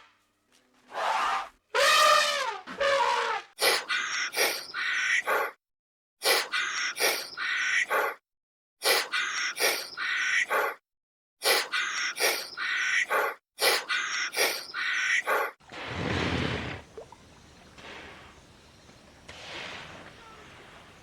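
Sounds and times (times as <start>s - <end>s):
high animal calls: 0.9s - 3.4s.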